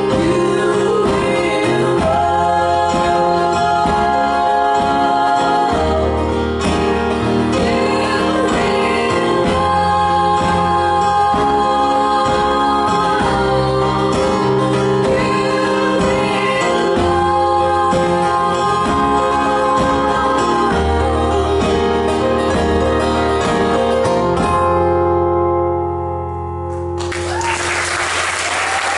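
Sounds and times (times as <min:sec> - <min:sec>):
person singing: 0:00.0 - 0:24.1
strummed guitars: 0:00.0 - 0:27.4
audience applause: 0:27.0 - 0:28.9.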